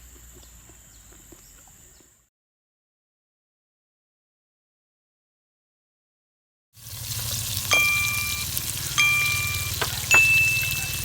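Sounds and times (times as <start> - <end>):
food frying in a pan: 6.8 - 11.0
sharp metallic clinks: 7.7 - 11.0.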